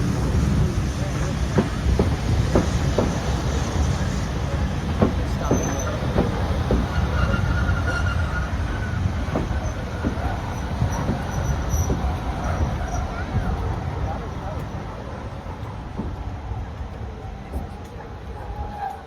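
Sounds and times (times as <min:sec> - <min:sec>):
train wheels clicking and knocking: 0:00.0 - 0:17.9
train rumbling: 0:00.0 - 0:19.0
faint wheel squeal: 0:05.4 - 0:06.1, 0:06.7 - 0:13.6.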